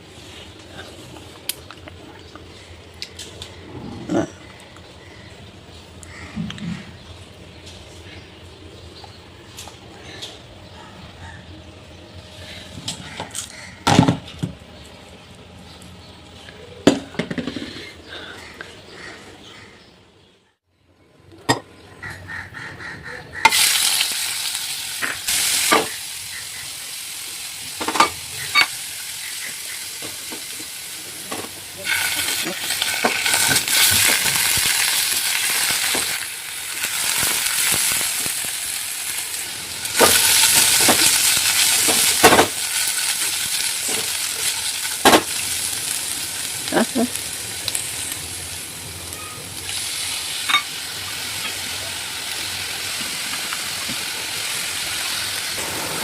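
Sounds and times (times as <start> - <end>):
food sizzling in a frying pan: 23.4 - 56.0.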